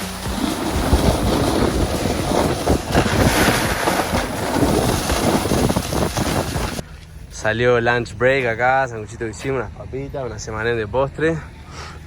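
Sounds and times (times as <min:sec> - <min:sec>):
snowboard scraping icy snow: 0:00.0 - 0:06.8
wind over microphone: 0:00.0 - 0:06.8.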